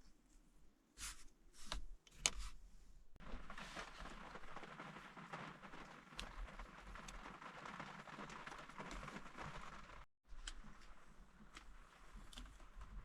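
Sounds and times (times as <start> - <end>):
light ticks of raindrops: 3.2 - 13.0
steady hiss of rain: 3.2 - 13.0.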